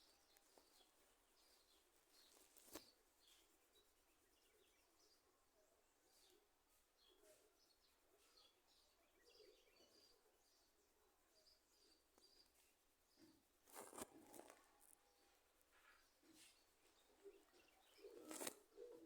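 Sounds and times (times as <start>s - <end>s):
faint bird chirps: 0.0s - 19.0s
rustle: 15.6s - 19.0s.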